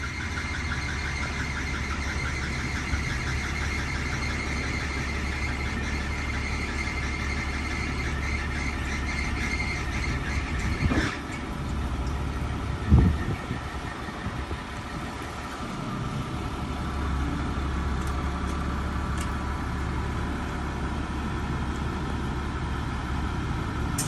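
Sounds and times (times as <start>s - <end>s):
high squealing whine: 0.0s - 15.6s
truck engine drone: 0.0s - 24.0s.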